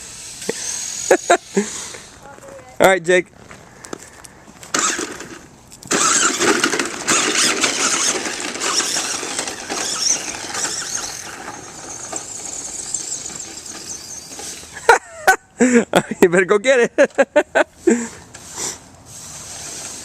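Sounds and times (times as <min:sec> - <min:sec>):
toy truck electric motor whining: 0:00.0 - 0:02.2, 0:04.7 - 0:14.8, 0:18.4 - 0:20.0.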